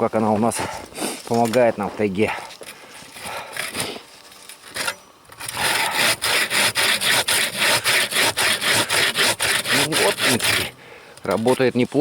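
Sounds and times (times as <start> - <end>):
bow saw cutting wood: 4.6 - 10.8.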